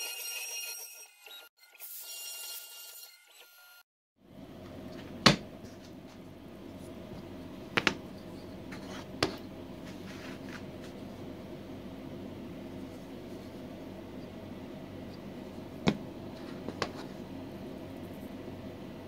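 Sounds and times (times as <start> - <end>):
steady low hum: 4.2 - 19.0.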